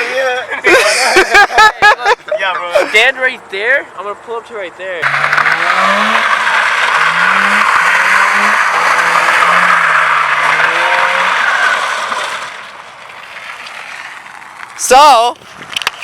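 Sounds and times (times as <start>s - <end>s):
car engine revving: 5.0s - 14.7s.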